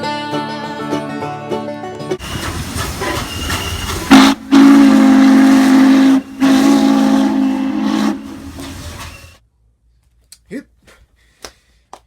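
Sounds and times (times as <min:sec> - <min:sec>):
hissing: 0:02.2 - 0:09.4
train whistle blasts: 0:02.2 - 0:09.4.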